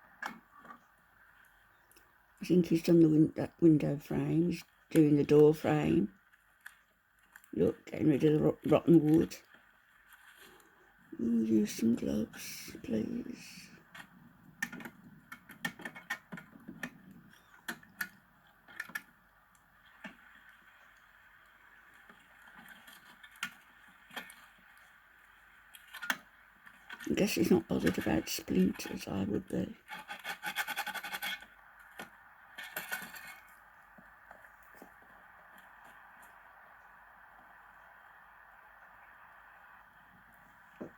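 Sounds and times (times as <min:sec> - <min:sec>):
scraping rotten wood by hand: 0:29.8 - 0:33.6.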